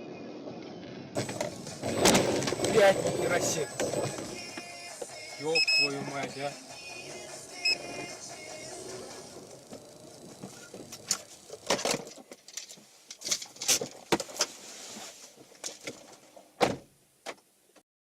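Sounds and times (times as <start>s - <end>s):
car cabin noise: 1.2s - 12.2s.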